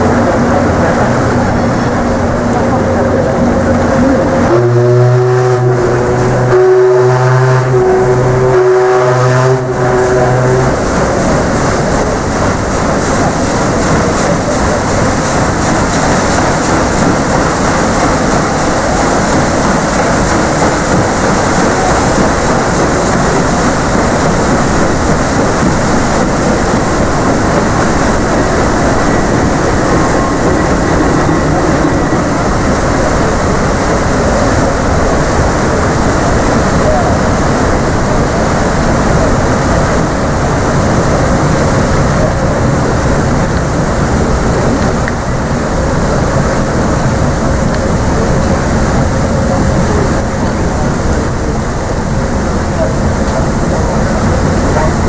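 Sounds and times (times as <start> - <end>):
sea noise: 0.0 - 55.0
wind: 0.0 - 55.0
deep ship's whistle blasts: 4.0 - 11.3.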